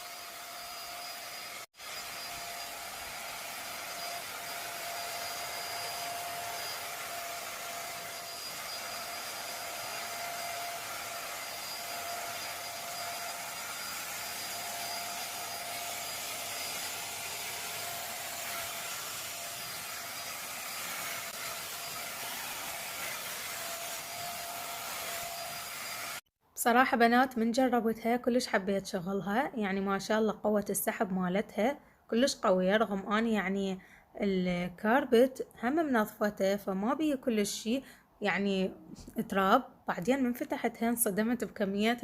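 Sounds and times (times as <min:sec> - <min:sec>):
vacuum cleaner running: 0:00.0 - 0:26.2.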